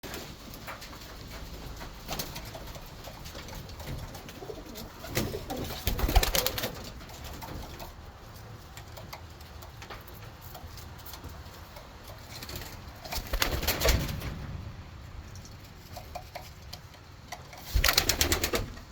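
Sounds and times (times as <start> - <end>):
pigeons cooing: 2.7 - 8.0.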